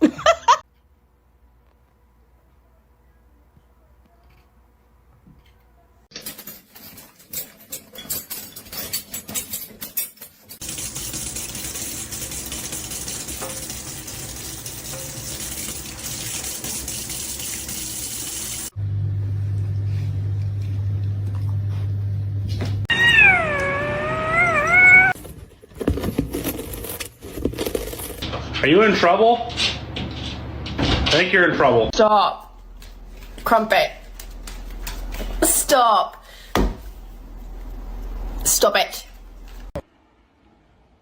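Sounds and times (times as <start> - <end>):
cat meowing: 22.9 - 25.2.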